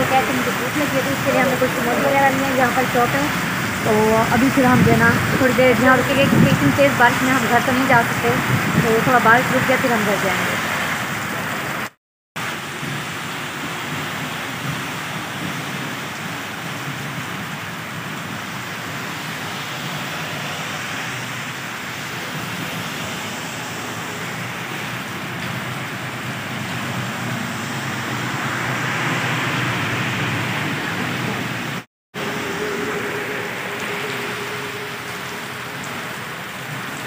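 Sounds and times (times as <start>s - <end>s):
heavy rain pouring: 0.0s - 37.0s
car tyres hissing on wet road: 10.3s - 37.0s.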